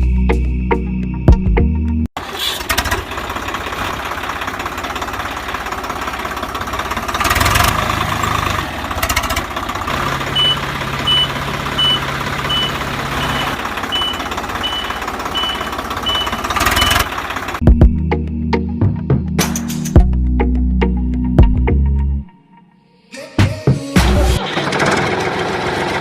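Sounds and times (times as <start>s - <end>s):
vehicle engine chugging: 2.2s - 17.7s, 24.0s - 26.0s
reversing alarm beeping: 10.2s - 17.1s.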